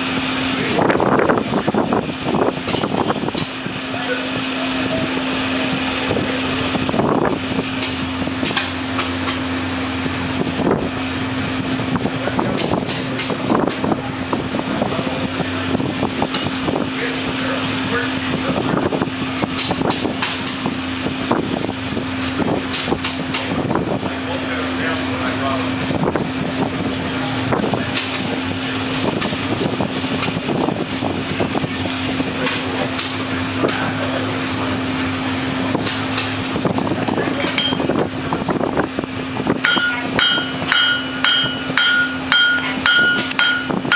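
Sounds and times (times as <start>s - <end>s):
steady mechanical hum: 0.0s - 43.9s
hammer blows on metal anvil: 37.5s - 37.8s, 39.6s - 43.9s.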